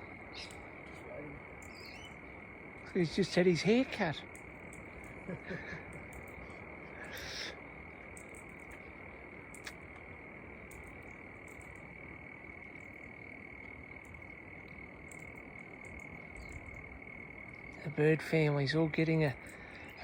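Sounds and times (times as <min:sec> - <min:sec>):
frogs calling: 0:00.0 - 0:20.0
rustle-like noise: 0:00.0 - 0:20.0.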